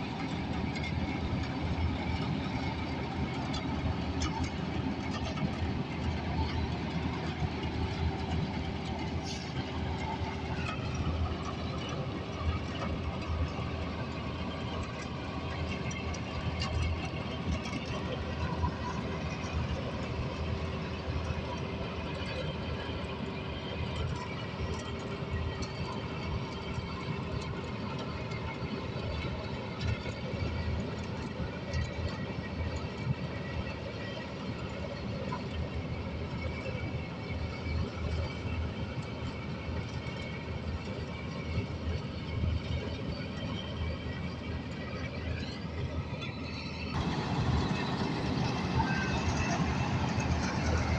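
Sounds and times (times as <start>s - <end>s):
diesel engine rumbling: 0.1s - 22.0s, 47.0s - 50.9s
faint steady hum: 47.0s - 50.9s.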